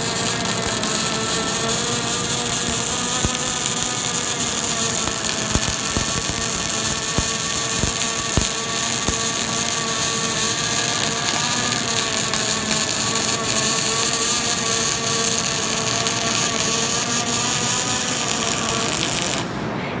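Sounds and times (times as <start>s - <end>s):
sharp clicks: 0.0s - 9.8s
welding arc hiss: 0.0s - 19.5s
machine hum: 0.0s - 20.0s.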